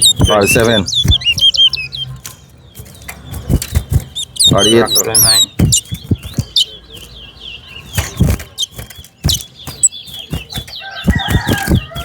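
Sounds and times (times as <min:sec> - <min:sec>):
finches chirping: 0:00.0 - 0:12.0
rooster crowing: 0:10.8 - 0:12.0.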